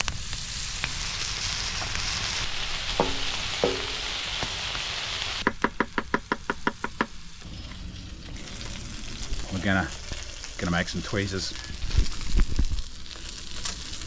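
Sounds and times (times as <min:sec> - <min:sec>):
food sizzling in a pan: 0:00.0 - 0:05.4, 0:06.8 - 0:14.0
sharp taps: 0:03.0 - 0:04.1.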